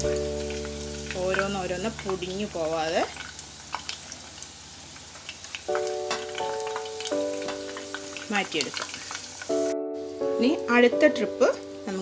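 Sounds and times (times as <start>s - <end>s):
background music chords: 0.0s - 1.9s, 5.7s - 8.3s, 9.4s - 12.0s
food sizzling in deep fryer: 0.0s - 12.0s.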